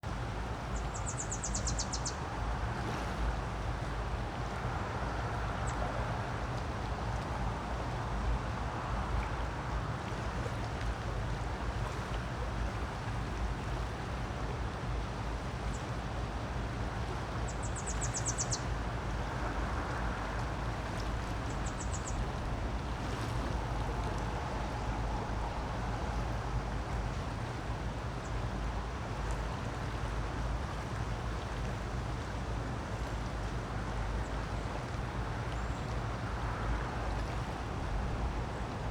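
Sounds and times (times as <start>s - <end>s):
creek water rushing: 0.2s - 38.9s.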